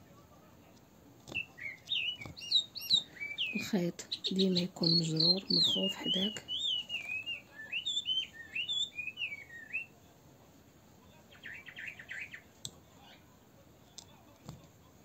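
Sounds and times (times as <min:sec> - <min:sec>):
songbird warbling whistles: 0:01.3 - 0:09.9
quick bird chirps: 0:01.4 - 0:09.9.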